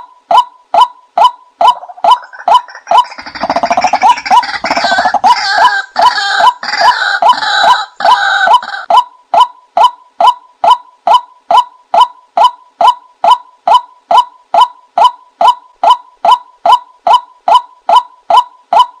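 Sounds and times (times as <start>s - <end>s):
harsh noisy bird calls: 1.6s - 9.0s.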